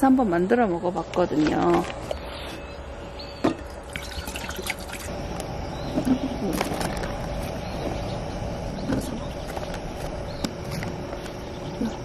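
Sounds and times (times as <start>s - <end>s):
water pouring into a metal pot: 3.7s - 5.1s.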